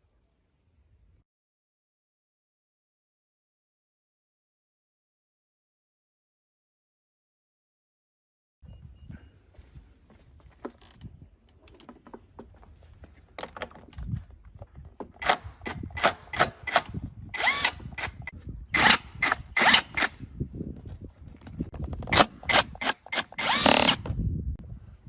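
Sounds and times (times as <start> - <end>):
concrete cutter clicks: 15.2 - 20.2, 22.0 - 24.2.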